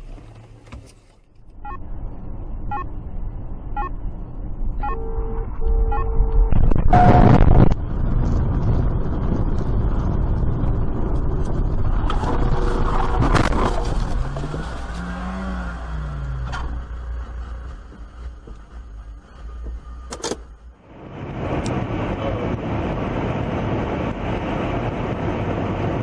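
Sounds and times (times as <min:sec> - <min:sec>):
car road noise: 0:00.0 - 0:26.0
short steady tone: 0:04.8 - 0:07.6.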